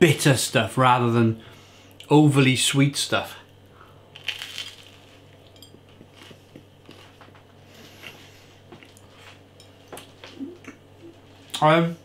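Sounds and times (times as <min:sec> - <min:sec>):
person chewing toast: 0:04.1 - 0:10.8.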